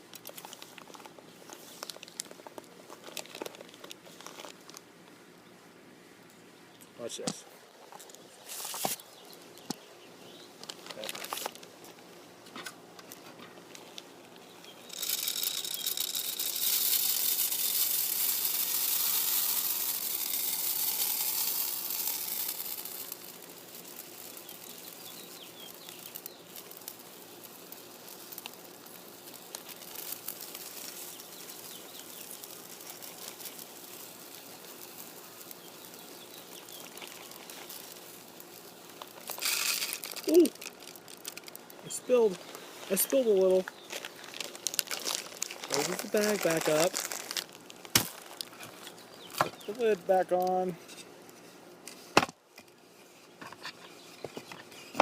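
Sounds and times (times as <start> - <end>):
birdseed pouring into feeder: 14.7 - 50.7.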